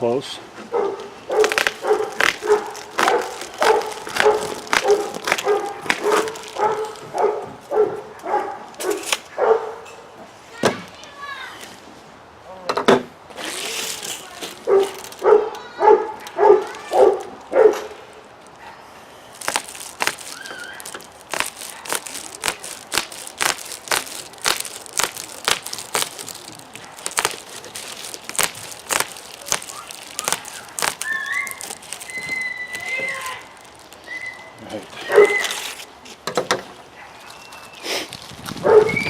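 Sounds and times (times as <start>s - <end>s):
dog barking: 0.7s - 9.8s, 14.6s - 18.0s, 35.0s - 35.4s, 38.6s - 39.0s
bubble wrap crinkling and clicking: 1.0s - 9.3s, 13.4s - 18.6s, 19.3s - 36.2s, 37.2s - 39.0s.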